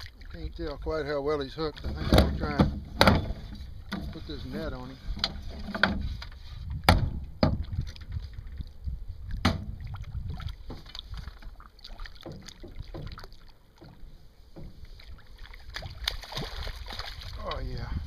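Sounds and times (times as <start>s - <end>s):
knocks on a boat: 1.9s - 4.1s, 6.8s - 7.7s, 9.4s - 9.8s, 12.2s - 13.2s.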